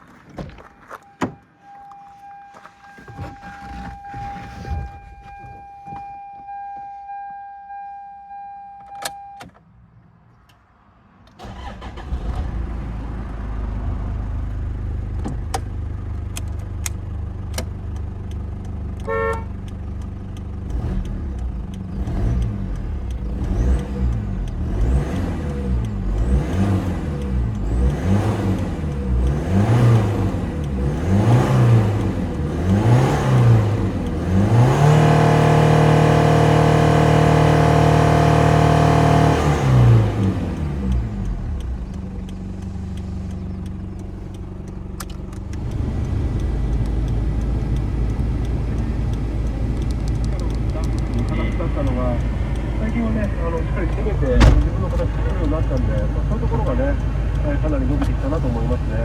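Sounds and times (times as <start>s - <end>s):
car warning chime: 0.6s - 4.2s, 5.0s - 9.5s
diesel engine starting and idling: 11.3s - 59.0s
engine revving: 11.4s - 14.5s, 20.6s - 59.0s.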